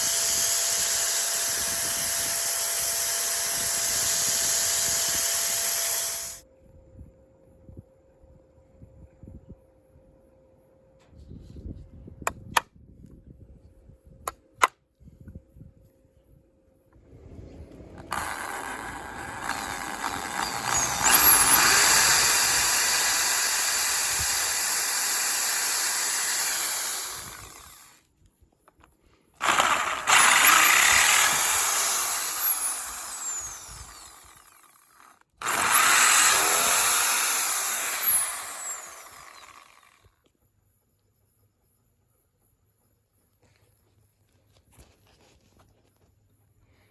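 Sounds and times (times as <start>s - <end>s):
power tool whining: 0.0s - 6.4s, 16.9s - 28.0s, 29.4s - 40.1s.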